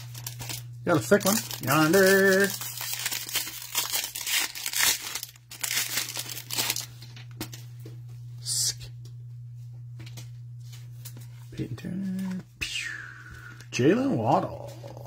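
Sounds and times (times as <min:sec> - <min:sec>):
plastic wrapper tearing and crinkling: 0:00.0 - 0:07.6
low electrical hum: 0:00.0 - 0:15.0.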